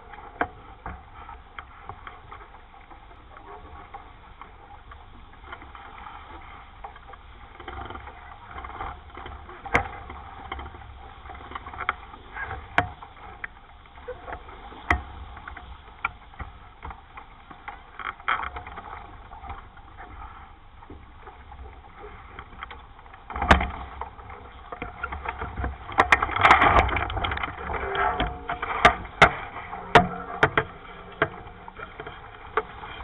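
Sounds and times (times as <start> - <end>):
water splashing along boat hull: 0.0 - 33.0
wind rumbling on microphone: 18.5 - 33.0.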